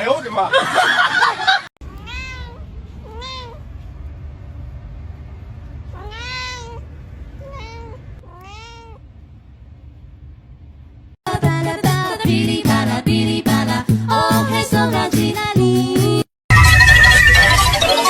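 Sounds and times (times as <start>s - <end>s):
cat meowing: 1.8s - 3.6s, 5.9s - 9.0s
low steady hum: 1.8s - 11.2s.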